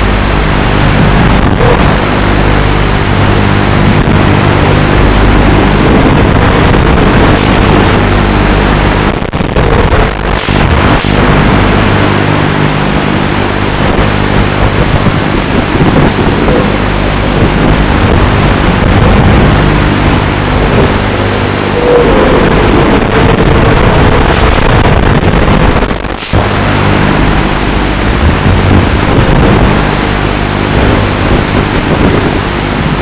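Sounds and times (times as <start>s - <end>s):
drone motors buzzing: 0.0s - 33.0s
air rushing past: 15.2s - 27.0s.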